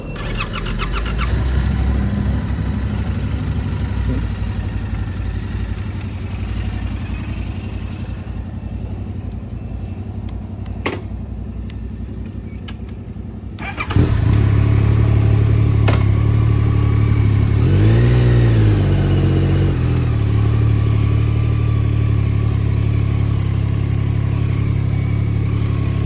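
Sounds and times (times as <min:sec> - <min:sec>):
motorcycle engine running: 0:00.0 - 0:26.0
light ticks: 0:05.6 - 0:06.8, 0:10.2 - 0:10.8.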